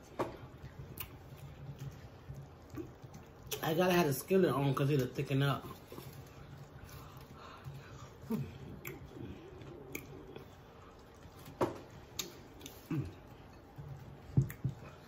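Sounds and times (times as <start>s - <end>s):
chewing food: 0.1s - 15.0s
wet mouth smacks and clicks: 9.8s - 10.2s, 12.1s - 12.8s.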